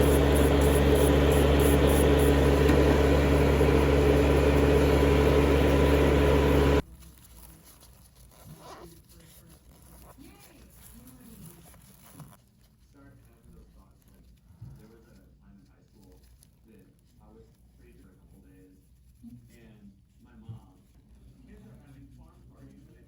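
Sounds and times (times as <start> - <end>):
electric motor whir with hiss: 0.0 - 6.8.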